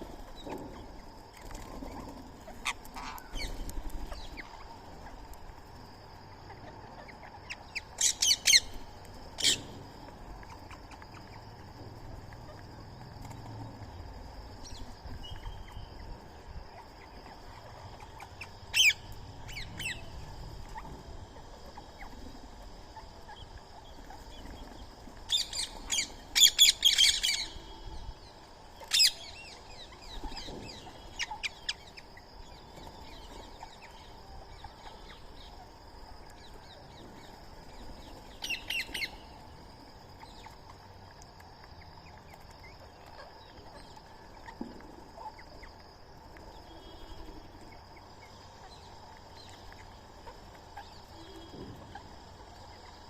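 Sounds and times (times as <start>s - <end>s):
outdoor birdsong: 0.0s - 53.0s.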